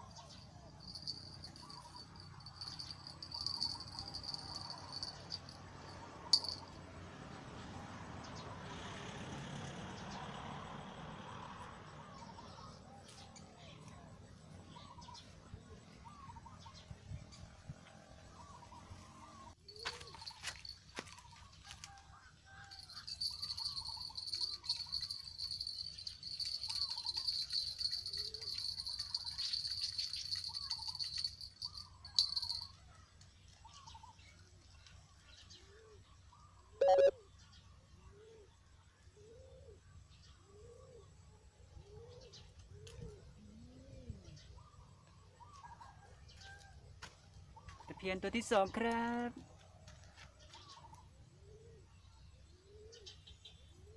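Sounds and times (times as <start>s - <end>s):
birds calling: 0.0s - 5.6s, 12.1s - 21.9s, 22.7s - 32.8s.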